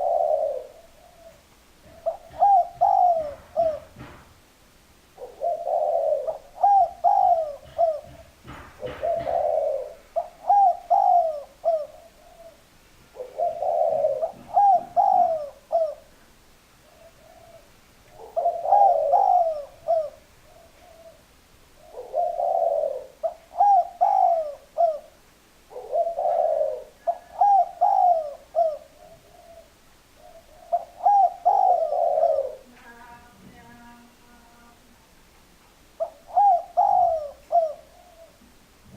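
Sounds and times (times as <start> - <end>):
dove cooing: 0.0 - 4.2, 5.2 - 33.0, 36.0 - 38.9.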